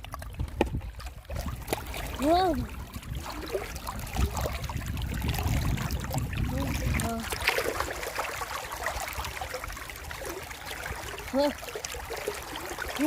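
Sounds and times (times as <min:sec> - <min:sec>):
flowing river water: 0:00.0 - 0:13.0
low rumble: 0:00.2 - 0:07.5.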